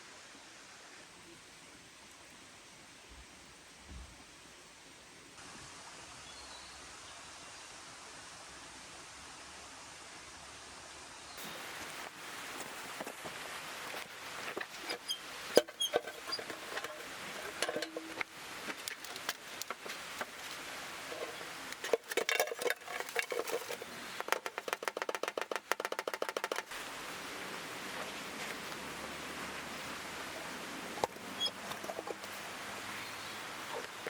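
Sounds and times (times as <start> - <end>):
steady background hiss: 0.0 - 24.5, 26.6 - 34.0
small metallic clinks: 14.6 - 20.4
fast run of clicks: 18.7 - 26.7.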